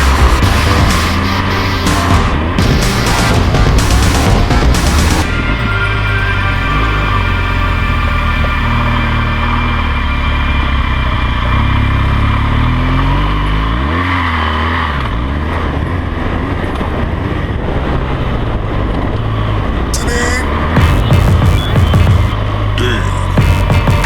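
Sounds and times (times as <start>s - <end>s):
motorcycle engine running: 0.0s - 13.6s, 20.5s - 24.0s.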